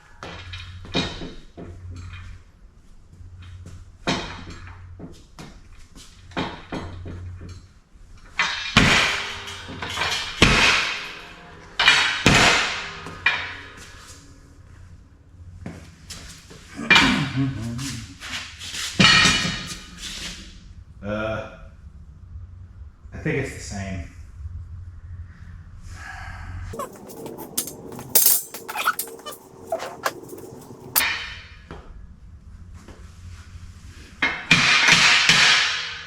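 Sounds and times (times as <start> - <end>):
metallic clanks and bangs: 26.8 - 31.0.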